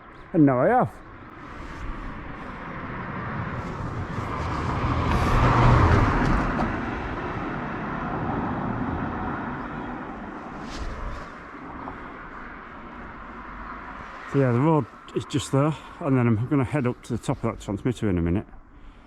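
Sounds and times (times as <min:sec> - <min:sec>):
vehicle driving past: 0:01.2 - 0:15.9.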